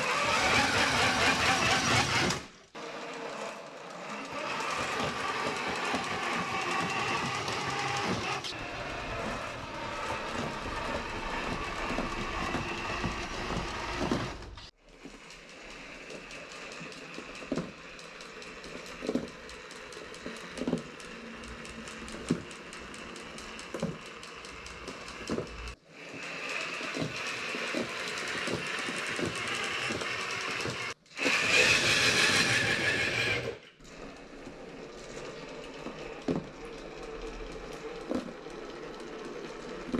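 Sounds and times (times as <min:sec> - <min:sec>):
electric motor and gears whirring: 0:00.0 - 0:39.9
wheels knocking over bump: 0:04.5 - 0:14.7.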